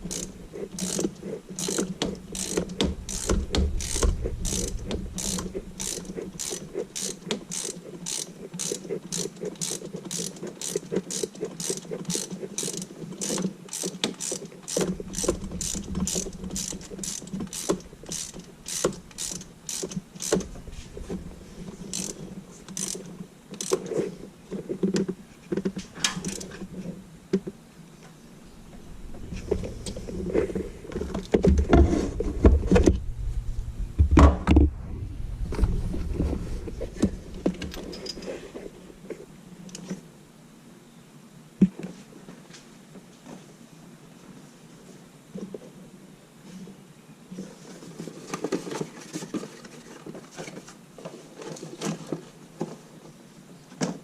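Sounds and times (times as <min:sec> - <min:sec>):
ratchet wrench clicking: 0:00.0 - 0:20.5, 0:21.8 - 0:23.9
knocks and handling noises: 0:08.6 - 0:33.1.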